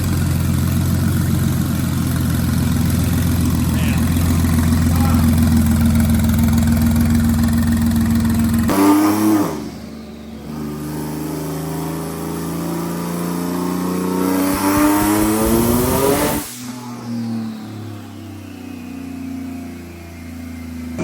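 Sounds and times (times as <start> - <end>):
car engine revving on a dyno: 7.5 - 21.0.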